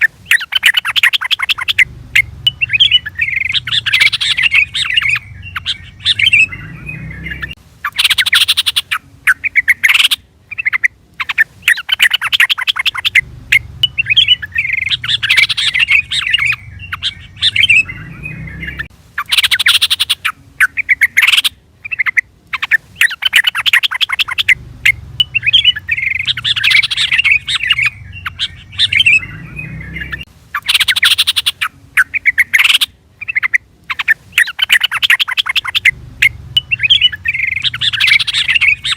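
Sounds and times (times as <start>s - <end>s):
bulbul calling: 0.0s - 38.9s.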